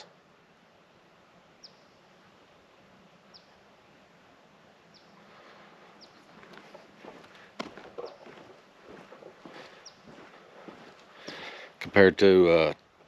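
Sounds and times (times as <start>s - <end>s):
bird chirping: 1.6s - 2.1s, 3.2s - 3.6s, 4.9s - 11.6s.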